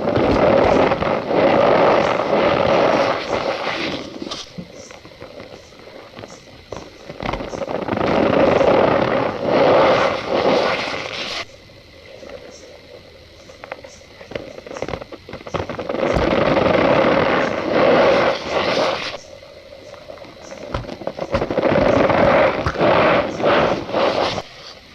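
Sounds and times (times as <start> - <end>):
light scattered ticks: 10.7 - 24.9.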